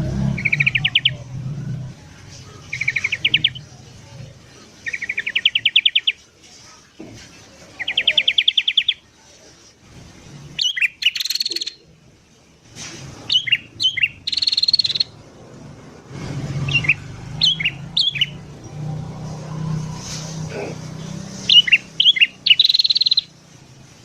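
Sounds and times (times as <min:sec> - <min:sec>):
bird whistled notes and buzzy trills: 0:00.0 - 0:01.2, 0:13.2 - 0:15.2, 0:16.6 - 0:18.5, 0:21.1 - 0:23.4
bulbul chattering trills: 0:00.0 - 0:06.2, 0:10.6 - 0:11.9, 0:13.3 - 0:15.2, 0:16.6 - 0:18.6, 0:20.5 - 0:23.4.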